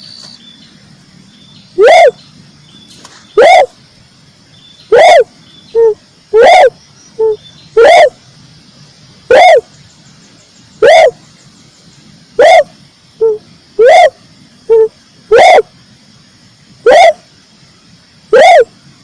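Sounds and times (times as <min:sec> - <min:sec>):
dove cooing: 0:01.8 - 0:02.2, 0:03.4 - 0:03.8, 0:04.9 - 0:08.2, 0:09.3 - 0:09.7, 0:10.8 - 0:11.2, 0:12.4 - 0:15.7, 0:16.8 - 0:17.3, 0:18.3 - 0:18.7.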